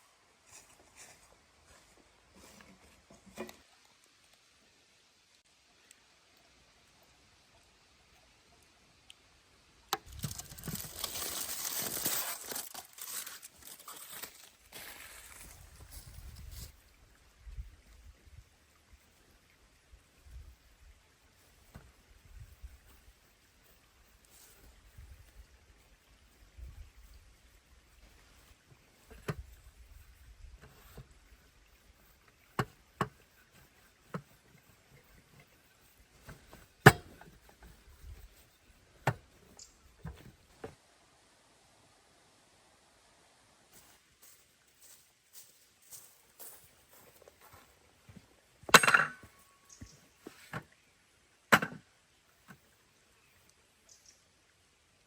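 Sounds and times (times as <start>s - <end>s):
crinkling and rustling: 10.0s - 16.8s, 21.4s - 40.8s.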